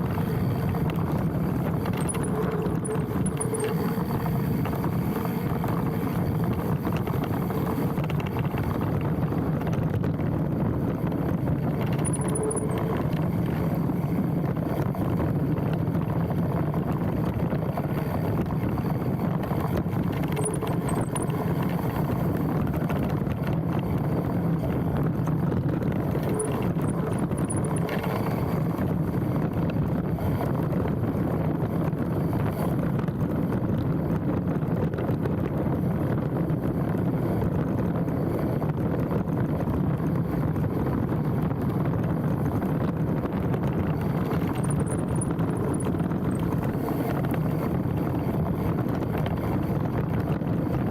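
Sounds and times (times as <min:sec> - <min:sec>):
bike tyre and frame rattle: 0:00.0 - 0:50.9
wind on camera: 0:00.0 - 0:50.9
high brake squeal: 0:02.0 - 0:03.9, 0:12.0 - 0:13.0.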